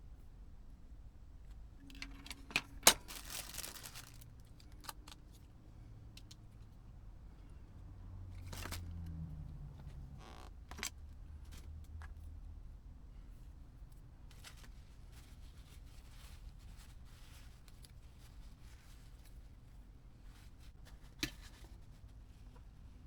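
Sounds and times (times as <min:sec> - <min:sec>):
rustling scrape: 0:01.8 - 0:04.4.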